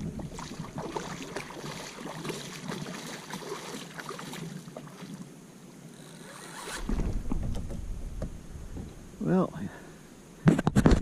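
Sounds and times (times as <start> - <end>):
water splashing around kayak: 0.0 - 6.0.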